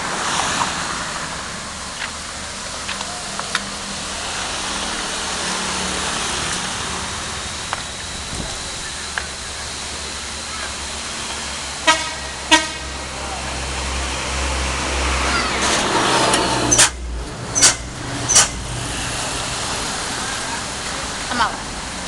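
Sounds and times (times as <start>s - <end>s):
steady rushing noise: 0.0s - 22.0s
vehicle horn toots: 11.8s - 13.2s.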